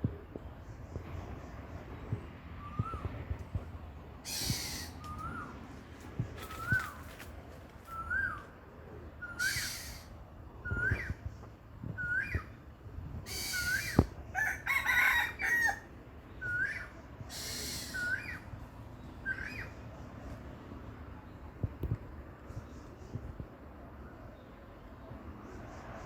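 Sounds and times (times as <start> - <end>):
bird calling: 4.2 - 5.6, 6.4 - 7.2, 7.9 - 11.2, 13.2 - 15.8, 16.4 - 18.5.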